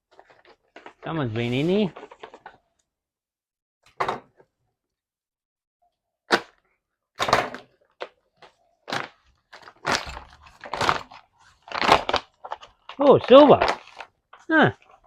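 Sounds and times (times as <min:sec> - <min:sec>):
packaging rustling and scraping: 0:00.1 - 0:02.7, 0:08.0 - 0:15.0.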